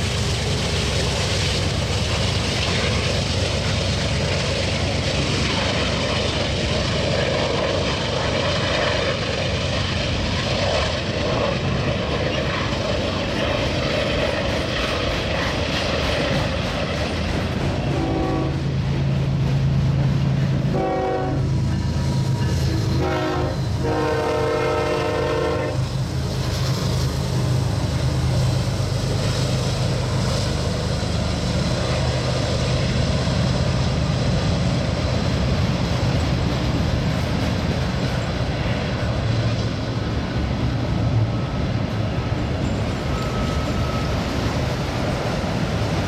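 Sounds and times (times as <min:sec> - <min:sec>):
distant locomotive horn blasts: 0:17.8 - 0:18.8, 0:20.6 - 0:25.9.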